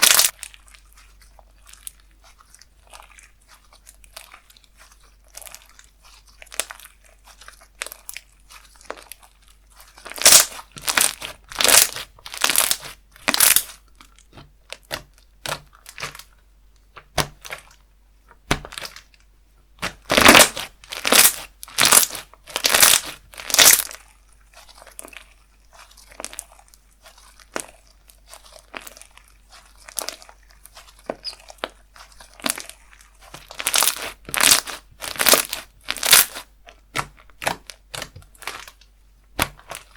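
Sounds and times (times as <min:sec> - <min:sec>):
slime popping and crackling: 0:00.0 - 0:16.3, 0:18.4 - 0:19.2, 0:19.8 - 0:39.9.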